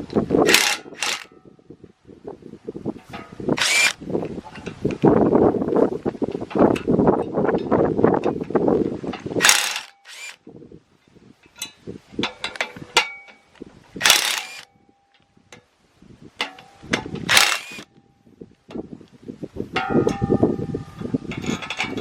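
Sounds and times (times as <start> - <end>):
metal scraping or grinding: 3.0 - 4.0, 9.2 - 10.4
metal tools clicking and clanking: 11.5 - 15.2, 21.3 - 22.0.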